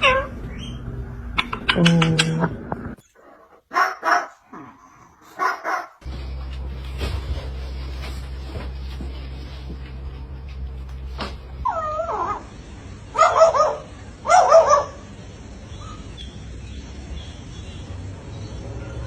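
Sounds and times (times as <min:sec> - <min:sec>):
dog yelping: 0:00.0 - 0:00.7, 0:11.6 - 0:12.5, 0:13.1 - 0:15.0
dog whining: 0:00.0 - 0:00.8, 0:11.6 - 0:12.5.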